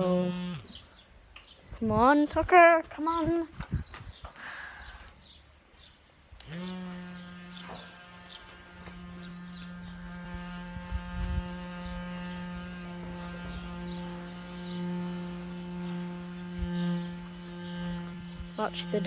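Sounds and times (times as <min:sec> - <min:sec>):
small electric motor humming: 0:00.0 - 0:01.0, 0:06.4 - 0:19.0.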